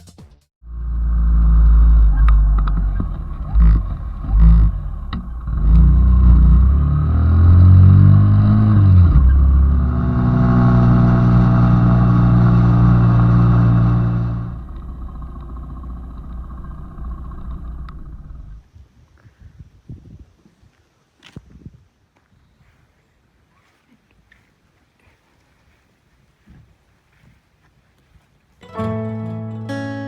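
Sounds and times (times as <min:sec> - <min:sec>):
small motorcycle engine accelerating: 0:00.7 - 0:18.6.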